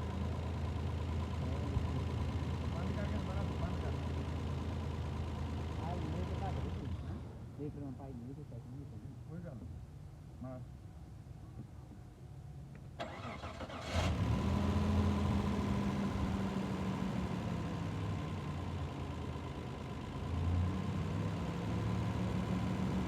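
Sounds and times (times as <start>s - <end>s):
car engine running: 0.0s - 7.9s, 13.9s - 23.0s.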